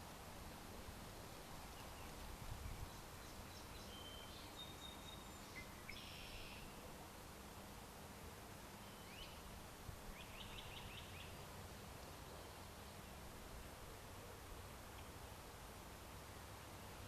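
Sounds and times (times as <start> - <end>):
steady background hiss: 0.0 - 17.0
small birds calling: 10.1 - 11.5.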